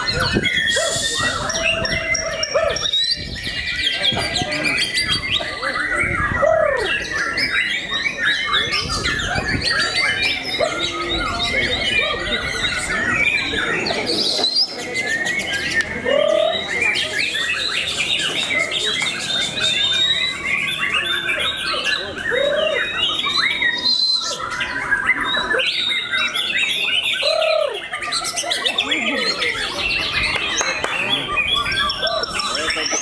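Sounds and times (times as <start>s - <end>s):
songbirds singing together: 0.0s - 33.0s.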